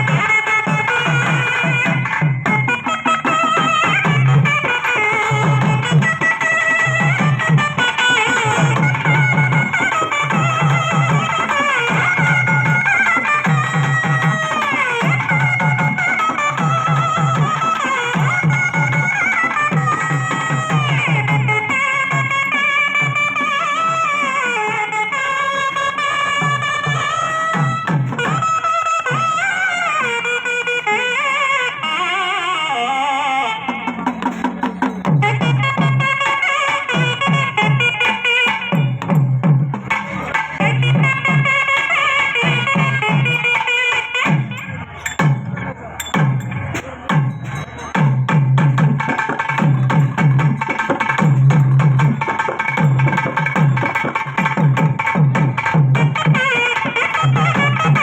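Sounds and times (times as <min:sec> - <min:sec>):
drum strokes: 0:00.0 - 0:24.0, 0:33.7 - 0:58.0
double-reed pipe melody: 0:00.0 - 0:34.2, 0:35.0 - 0:39.1, 0:40.4 - 0:45.5, 0:55.3 - 0:58.0.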